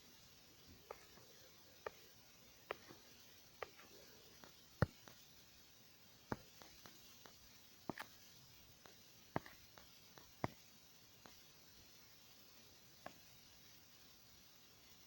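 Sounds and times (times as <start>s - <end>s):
room hiss: 0.0s - 15.0s.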